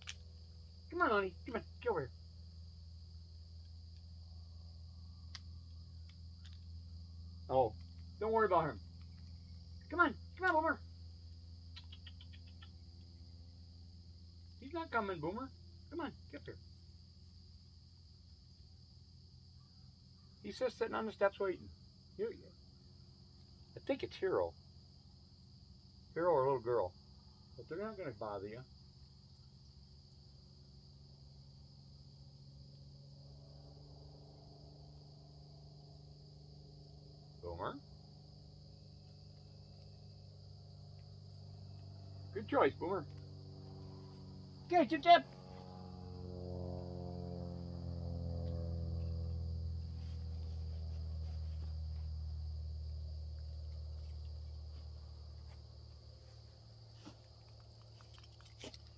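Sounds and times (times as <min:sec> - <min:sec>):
crickets chirping: 0:00.0 - 0:58.9
low hum: 0:38.7 - 0:58.9.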